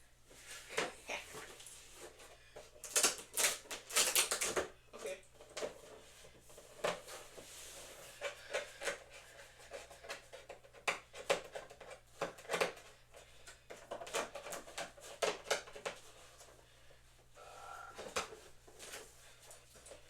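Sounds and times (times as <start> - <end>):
packaging clicks and crackles: 2.8 - 4.7.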